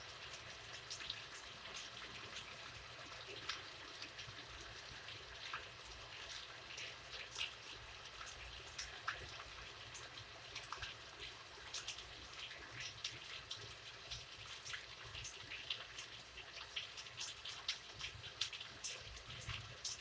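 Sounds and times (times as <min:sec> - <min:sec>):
faint steady hiss: 0:00.0 - 0:20.0
raindrops tapping on a surface: 0:03.2 - 0:04.4, 0:05.4 - 0:20.0.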